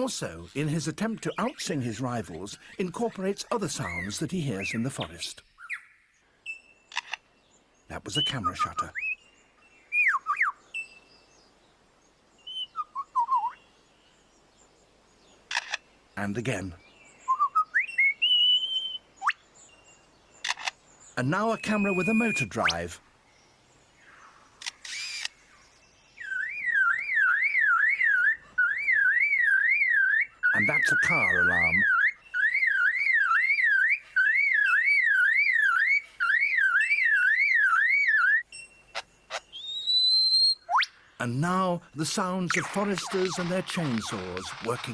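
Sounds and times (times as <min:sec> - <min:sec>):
lyrebird whistling: 0:17.2 - 0:19.4, 0:21.5 - 0:22.9, 0:26.2 - 0:41.0, 0:42.2 - 0:44.9
bird mimicking a car alarm: 0:26.3 - 0:39.0, 0:42.5 - 0:44.9.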